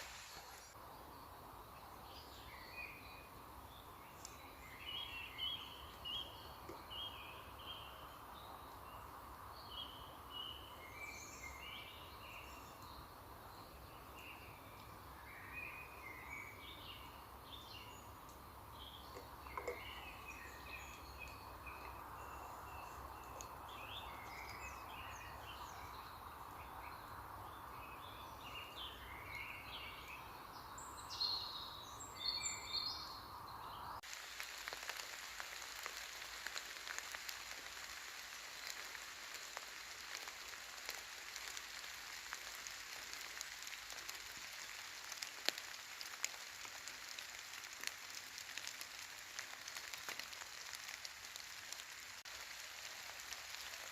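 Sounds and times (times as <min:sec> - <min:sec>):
rain falling: 0:00.0 - 0:00.8, 0:15.9 - 0:25.9, 0:34.0 - 0:53.9.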